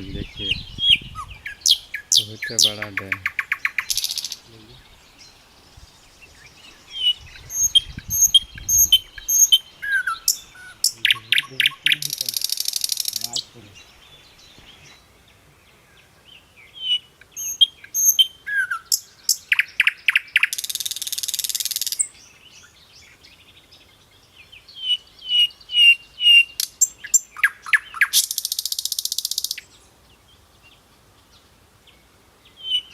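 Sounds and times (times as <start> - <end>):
buzzy rattling bird trill: 0.0 - 4.5, 7.3 - 13.7, 26.6 - 29.6
small birds chirping: 0.0 - 32.9.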